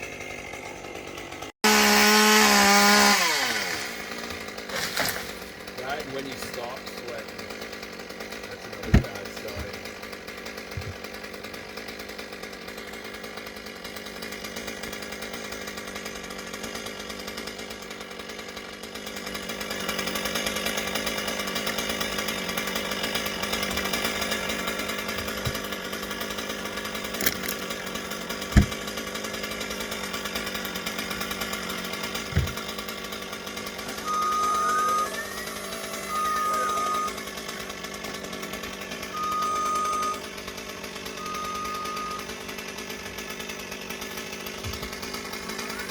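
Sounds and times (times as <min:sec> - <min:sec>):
chainsaw engine running: 0:00.0 - 0:45.9
sharp knocks: 0:28.5 - 0:28.9, 0:32.2 - 0:32.8
long steady beeps: 0:34.0 - 0:37.2, 0:39.1 - 0:40.2, 0:41.2 - 0:42.3.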